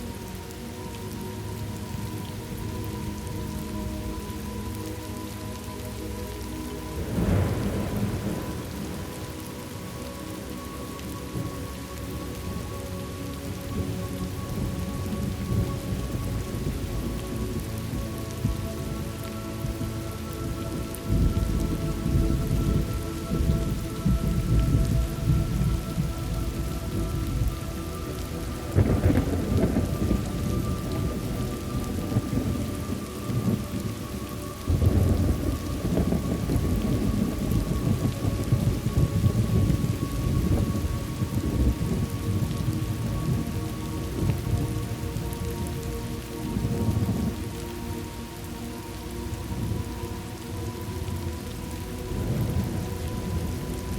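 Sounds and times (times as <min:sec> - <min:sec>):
heavy rain: 0:00.0 - 0:53.9
rumbling thunder: 0:06.9 - 0:09.6, 0:20.7 - 0:34.0, 0:34.6 - 0:45.7.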